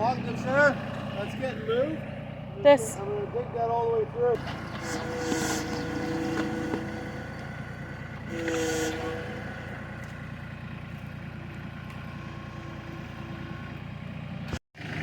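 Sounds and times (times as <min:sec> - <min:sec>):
tractor diesel engine running: 0:00.0 - 0:15.0
hydraulic whine: 0:04.3 - 0:15.0.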